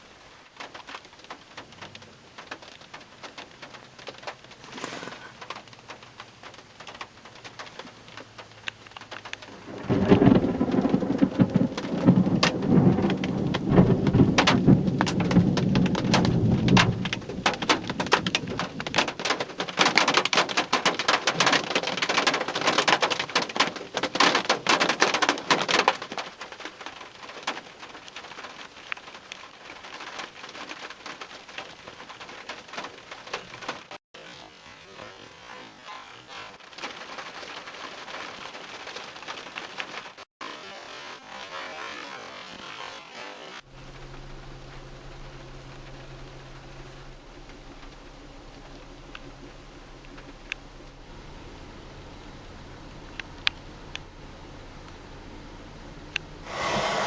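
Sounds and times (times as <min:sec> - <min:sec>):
rain: 0:00.0 - 0:57.0
thunder rumbling: 0:09.4 - 0:23.5, 0:43.7 - 0:57.0.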